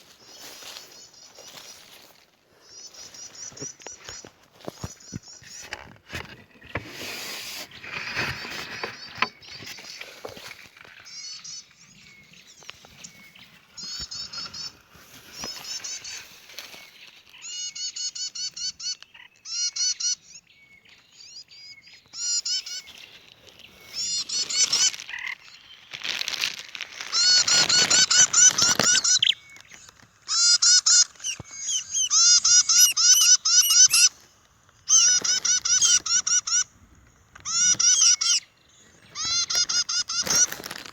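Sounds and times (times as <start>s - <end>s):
bird calling harsh notes: 22.2s - 23.0s, 23.8s - 25.8s, 27.0s - 34.2s, 34.8s - 36.7s, 37.4s - 40.9s.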